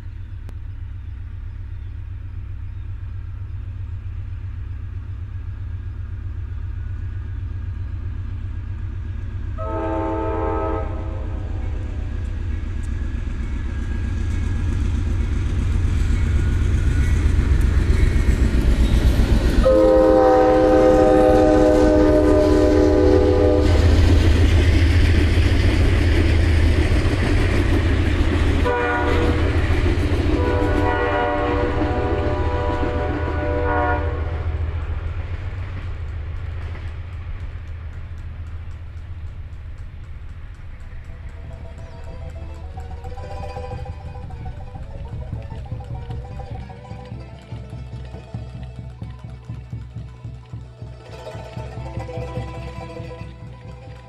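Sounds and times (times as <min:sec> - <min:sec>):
train rumbling: 0:00.0 - 0:54.0
train horn blasts: 0:09.6 - 0:12.4, 0:19.1 - 0:24.2, 0:28.6 - 0:34.9, 0:41.3 - 0:47.8.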